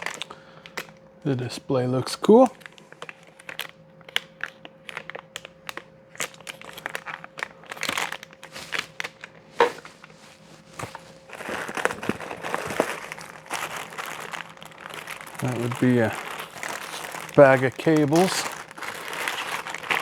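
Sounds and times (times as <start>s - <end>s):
plastic packaging crinkling: 0.0s - 1.0s, 2.2s - 20.0s.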